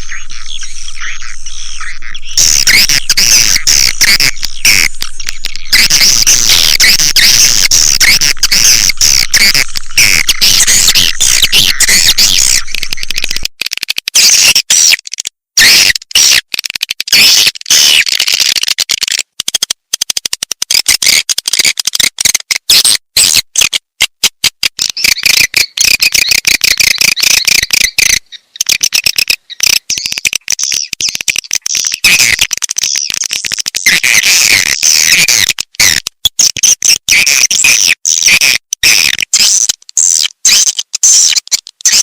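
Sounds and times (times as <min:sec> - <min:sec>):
swiftlet chirps and twitters: 0:00.0 - 0:13.5, 0:24.8 - 0:35.2.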